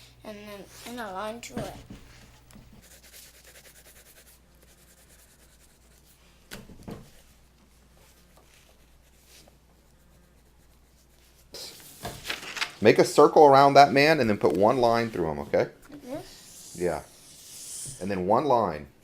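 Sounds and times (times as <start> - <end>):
coloring strokes on paper: 0.0 - 6.4, 7.1 - 12.0, 14.6 - 18.2.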